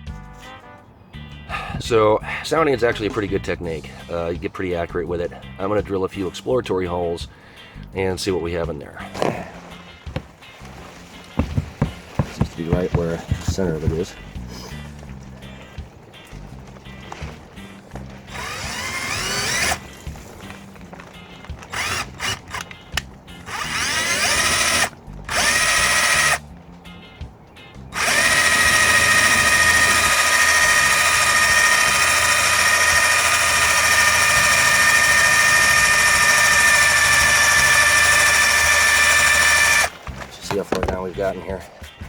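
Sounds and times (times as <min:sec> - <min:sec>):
power drill whining: 0:17.0 - 0:26.5, 0:27.9 - 0:40.9.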